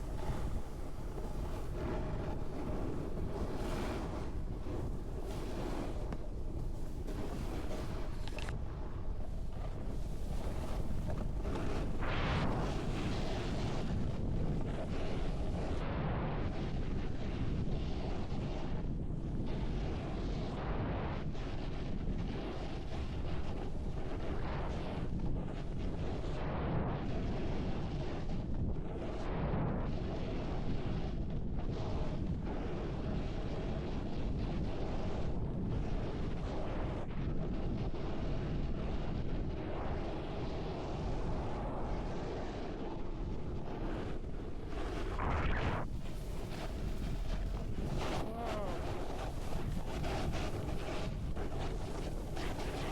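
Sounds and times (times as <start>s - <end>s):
snowboard scraping over snow: 0.0s - 15.8s, 31.7s - 52.9s
wind buffeting microphone: 0.0s - 52.9s.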